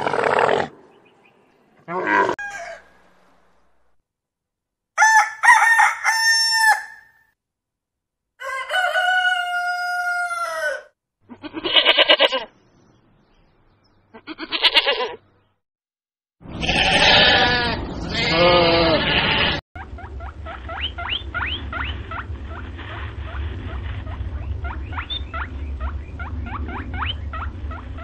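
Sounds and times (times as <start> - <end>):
rooster crowing: 2.2 - 3.0, 5.0 - 7.1, 8.4 - 10.9
sheep bleating: 14.2 - 15.2, 16.5 - 19.6.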